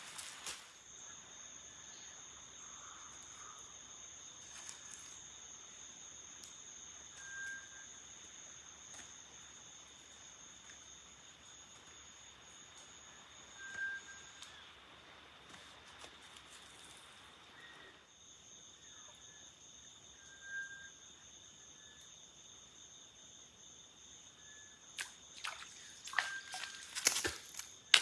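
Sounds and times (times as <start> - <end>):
crickets trilling: 0.0 - 28.0
short whistled calls: 13.5 - 14.7, 26.1 - 27.0.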